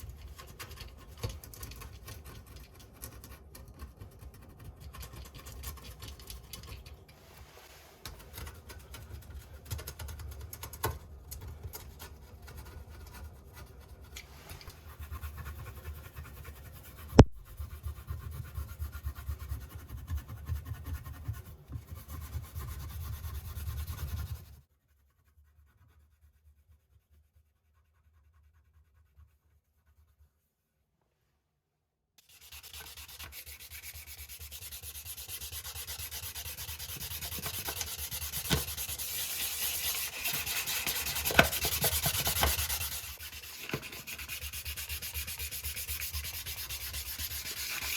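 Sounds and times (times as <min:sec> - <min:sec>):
scraping on plumbing fittings: 0:36.9 - 0:45.1.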